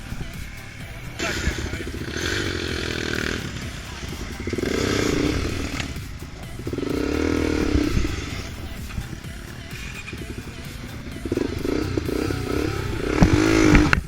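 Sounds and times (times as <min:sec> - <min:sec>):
off-road engine revving hard: 0:00.0 - 0:14.0.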